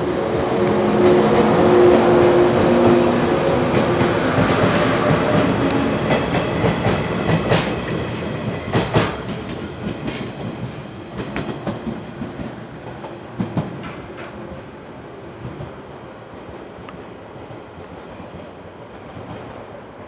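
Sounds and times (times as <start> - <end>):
train wheels clattering over rail joints: 0.9 - 14.5.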